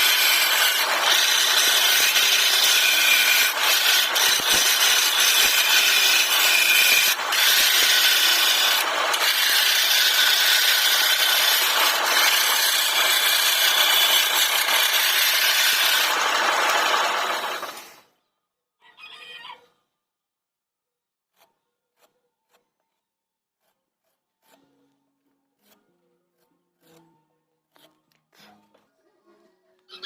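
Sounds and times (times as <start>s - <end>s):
power tool cutting wood: 0.0s - 18.0s.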